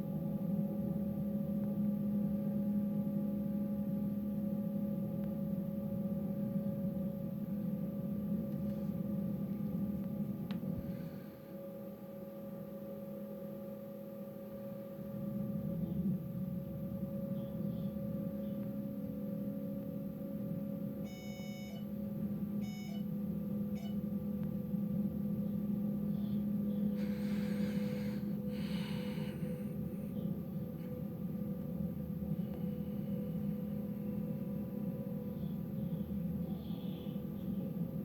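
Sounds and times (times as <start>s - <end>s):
train electrical hum: 0.0s - 38.0s.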